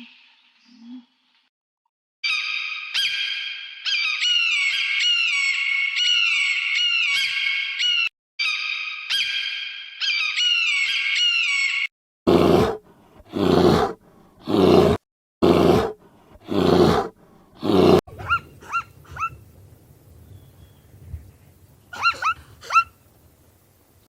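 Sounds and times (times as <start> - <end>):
wavering animal call: 10.0 - 19.4, 21.9 - 23.0
animal rasping roars: 12.3 - 19.4.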